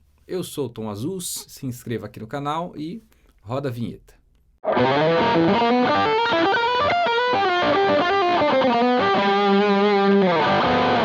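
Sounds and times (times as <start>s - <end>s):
distorted electric guitar riff: 4.6s - 11.0s.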